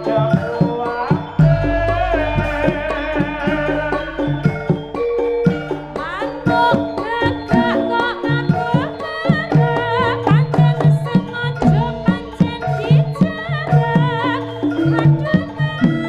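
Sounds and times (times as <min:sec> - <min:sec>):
hand drum strokes: 0:00.0 - 0:08.0
sustained pitched tones: 0:00.0 - 0:09.0
high wavering melody: 0:00.0 - 0:16.0.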